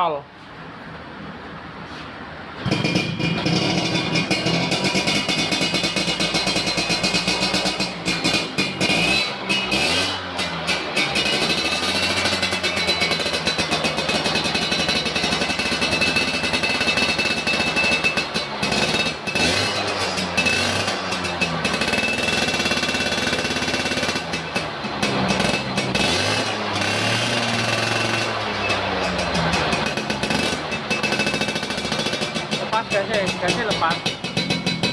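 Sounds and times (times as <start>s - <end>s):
moped engine revving: 2.6s - 34.9s.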